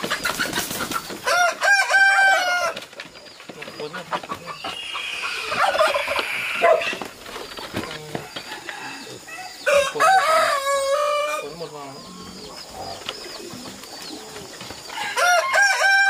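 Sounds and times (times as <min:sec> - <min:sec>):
chicken calls: 0:00.0 - 0:16.0
rooster crowing: 0:01.2 - 0:02.8, 0:08.2 - 0:11.5, 0:14.9 - 0:16.0.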